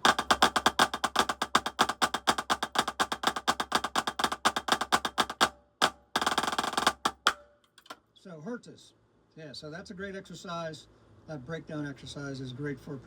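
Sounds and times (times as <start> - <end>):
drumstick strokes: 0.0 - 8.0.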